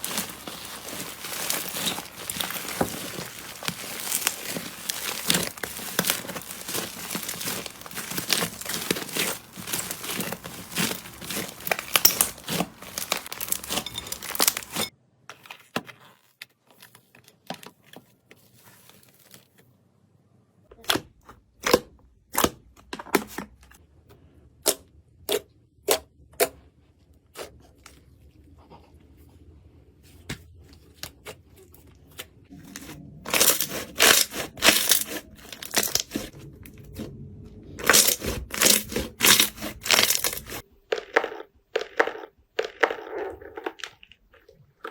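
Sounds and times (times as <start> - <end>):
slime crackling and crunching: 0.0 - 14.9, 32.4 - 44.9.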